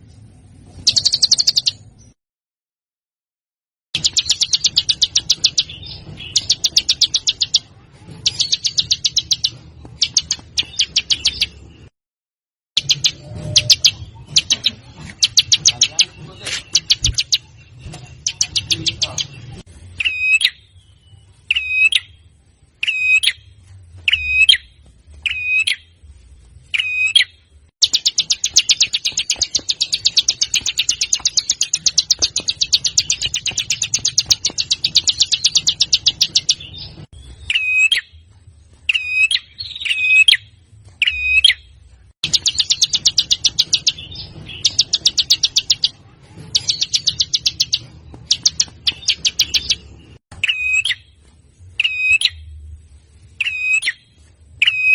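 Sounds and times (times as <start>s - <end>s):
songbird fast rattling trill: 4.0s - 7.6s, 26.8s - 36.7s, 42.2s - 51.0s.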